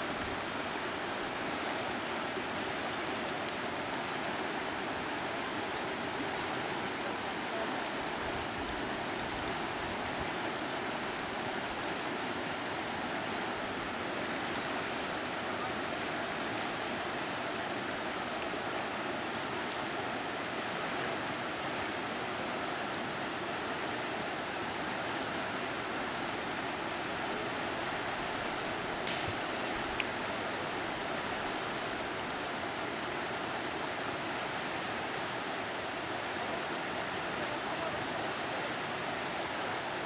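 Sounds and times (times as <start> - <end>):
river current rushing: 0.0 - 40.0.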